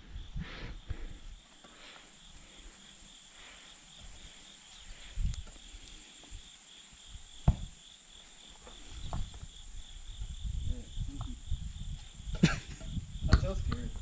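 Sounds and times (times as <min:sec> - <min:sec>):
insects chirping: 0:00.0 - 0:14.0
dull thump: 0:07.4 - 0:07.8.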